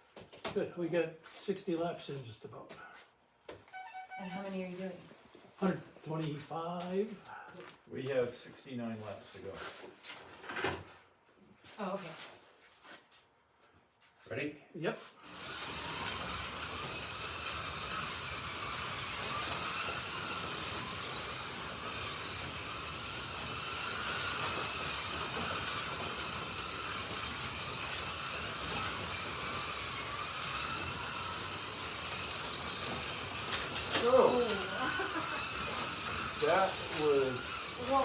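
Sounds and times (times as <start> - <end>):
slot car motors whining: 15.2 - 38.0.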